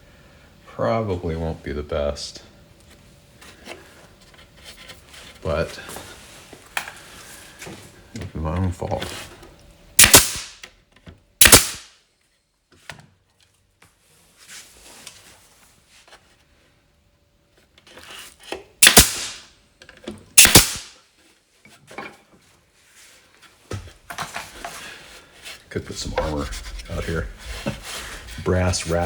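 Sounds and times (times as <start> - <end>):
nails hammered into wood: 10.0 - 10.7, 11.4 - 11.9, 18.8 - 19.4, 20.4 - 20.9.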